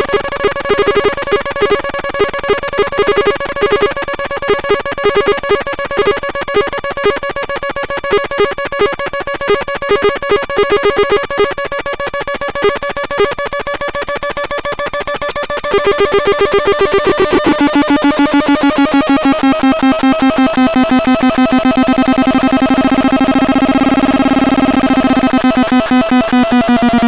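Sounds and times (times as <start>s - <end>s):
stuttering low beeps: 0.0s - 27.0s
pulsing high electronic drone: 15.2s - 27.0s.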